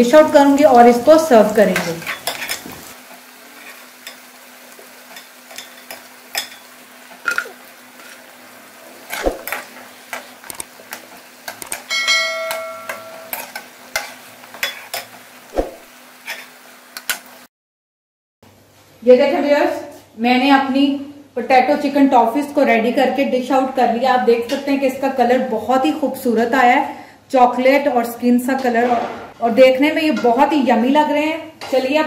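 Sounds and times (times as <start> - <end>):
food sizzling in oil: 0.0 - 17.5
bell-like chime: 11.9 - 13.3
metal spatula scraping pan: 16.2 - 16.6.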